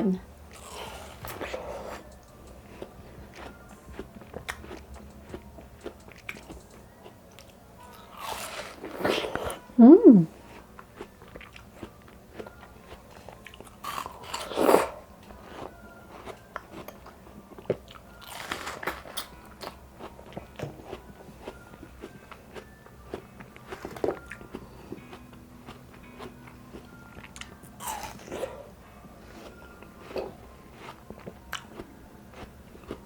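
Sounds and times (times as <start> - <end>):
chewing clicks: 0.6 - 7.6
crunchy watermelon bites: 7.4 - 9.6, 17.7 - 19.8, 27.3 - 28.5.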